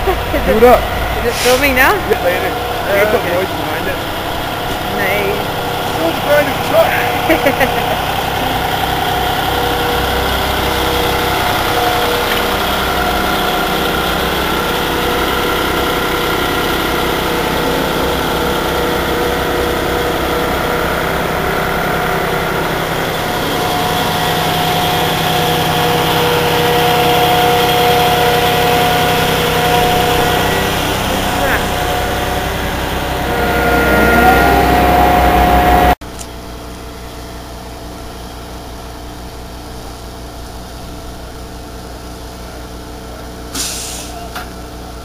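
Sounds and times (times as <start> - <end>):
diesel truck engine running: 0.0 - 45.0.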